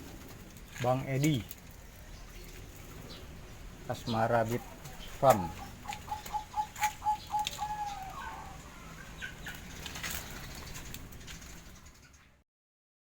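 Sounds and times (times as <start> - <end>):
dove cooing: 2.4 - 10.9.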